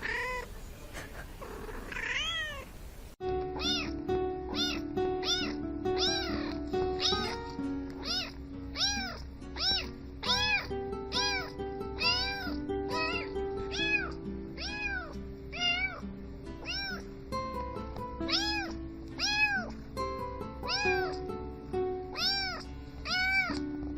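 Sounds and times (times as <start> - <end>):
cat meows: 0.0 - 0.5, 1.9 - 2.7, 3.5 - 7.4, 8.0 - 16.0, 16.6 - 17.1, 18.3 - 19.8, 20.7 - 21.2, 22.1 - 23.6
backing music with held chords: 3.2 - 23.9.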